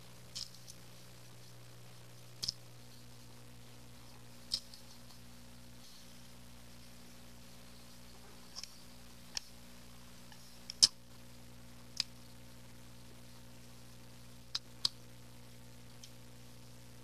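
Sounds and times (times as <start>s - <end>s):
low steady hum: 0.0s - 17.0s
chopsticks clicking while eating: 2.4s - 2.6s, 10.3s - 11.0s.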